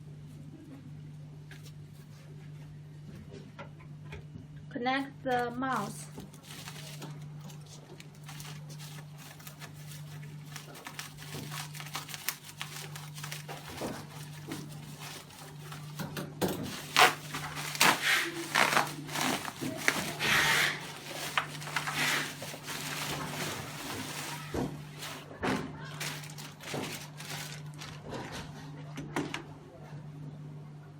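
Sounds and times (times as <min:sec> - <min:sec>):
plastic packaging crinkling: 0:05.8 - 0:28.3.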